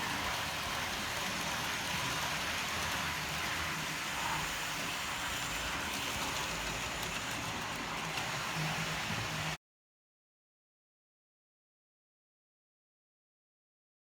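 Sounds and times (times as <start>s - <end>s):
model train running on track: 0.0s - 9.6s.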